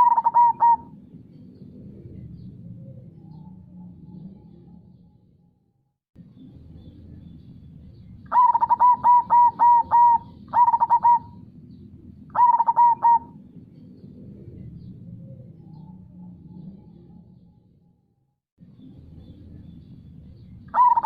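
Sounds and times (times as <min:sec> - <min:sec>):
dove cooing: 0:00.0 - 0:04.4, 0:08.3 - 0:11.5, 0:12.3 - 0:13.5, 0:20.7 - 0:21.0.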